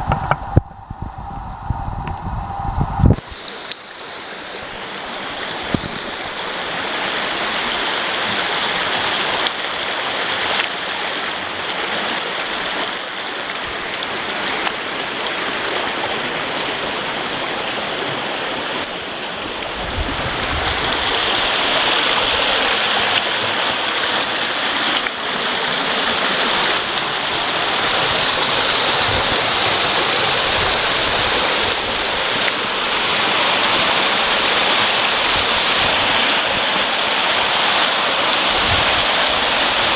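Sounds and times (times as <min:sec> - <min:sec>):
water pouring down waterfall: 0:03.2 - 0:39.9.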